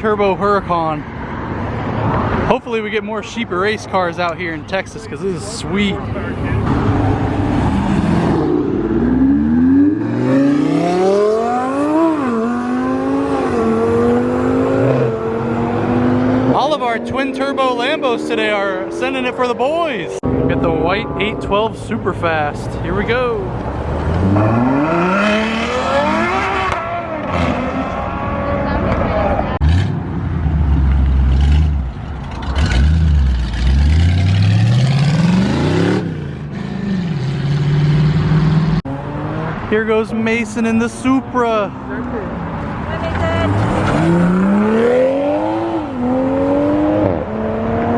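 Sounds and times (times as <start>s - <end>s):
sports car accelerating hard: 6.5s - 19.4s, 23.8s - 39.7s, 43.2s - 47.9s.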